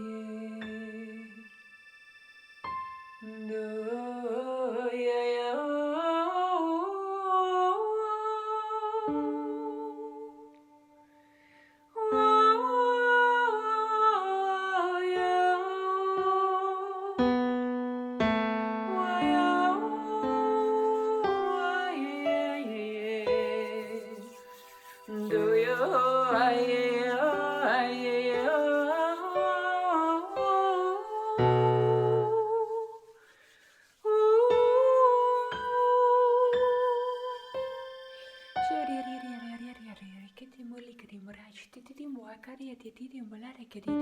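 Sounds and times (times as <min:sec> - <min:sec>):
woman singing wordlessly: 0:00.0 - 0:01.4, 0:03.2 - 0:10.7, 0:12.0 - 0:17.3, 0:18.8 - 0:33.2, 0:34.0 - 0:37.5, 0:38.6 - 0:44.0
electronic keyboard-like notes: 0:35.8 - 0:40.0.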